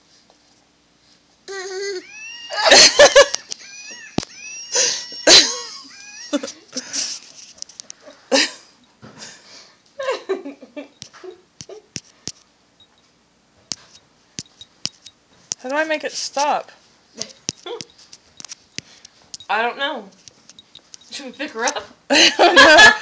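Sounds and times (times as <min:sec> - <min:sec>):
toy monkey screeching: 0:02.0 - 0:06.5.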